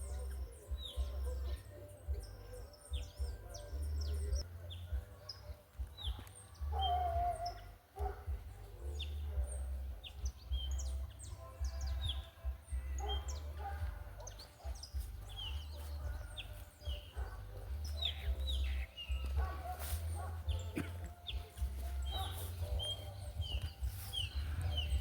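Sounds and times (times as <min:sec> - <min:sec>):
small birds chirping: 0:00.0 - 0:25.0
wind rumble on microphone: 0:21.4 - 0:25.0.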